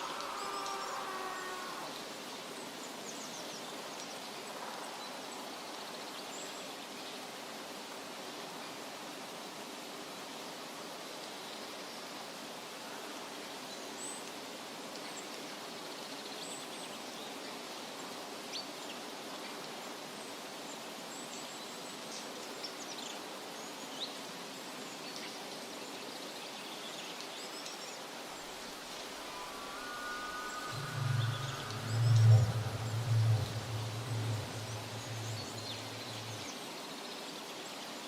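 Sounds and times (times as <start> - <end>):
steady rushing hiss: 28.0 - 36.9
faint bird chirps: 28.3 - 36.6.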